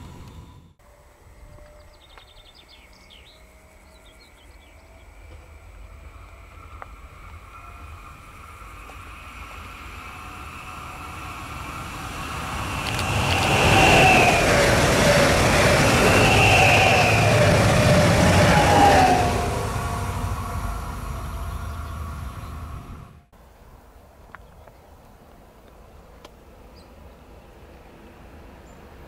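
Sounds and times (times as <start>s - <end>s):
train approaching: 0.0s - 29.0s.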